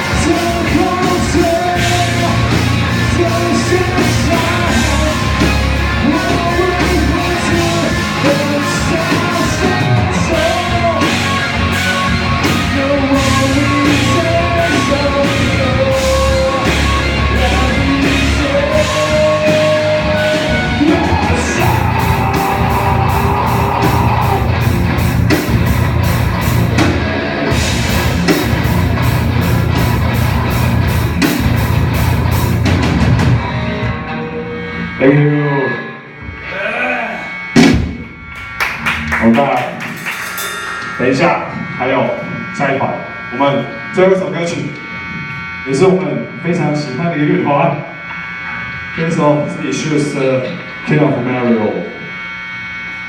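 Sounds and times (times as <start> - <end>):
person singing: 0.0 - 24.7
electric guitars: 0.0 - 53.0
drum beat: 37.6 - 41.6.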